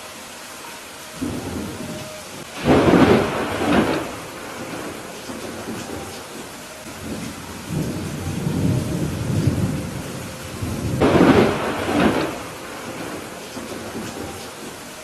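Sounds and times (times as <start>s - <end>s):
steady rain: 0.0s - 15.0s
thunder rumbles and claps: 1.2s - 14.8s.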